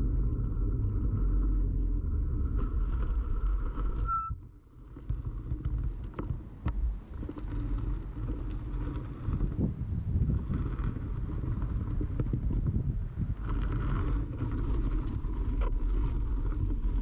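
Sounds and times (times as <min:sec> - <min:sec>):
bicycle rumble and rattle: 0:00.0 - 0:17.0
short squeal: 0:04.0 - 0:04.4.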